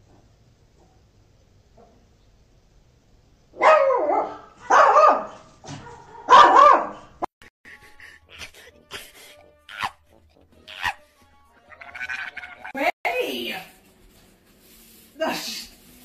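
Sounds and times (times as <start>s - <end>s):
dog barking: 3.6s - 7.2s.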